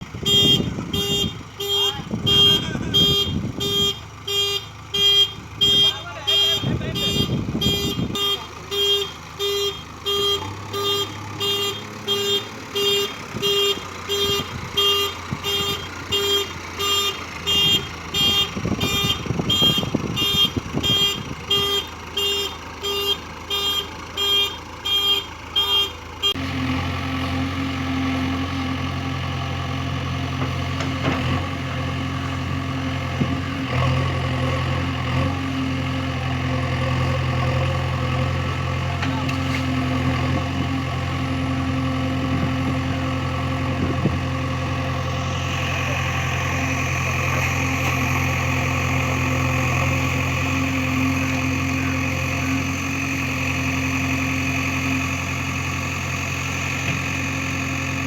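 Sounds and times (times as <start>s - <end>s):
diesel engine running: 0.0s - 58.0s
reversing alarm beeping: 0.2s - 26.4s.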